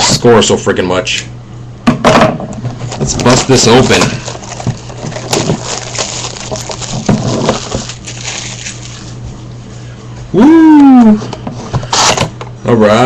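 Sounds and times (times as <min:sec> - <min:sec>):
cardboard wrap crinkling: 0:03.1 - 0:09.2.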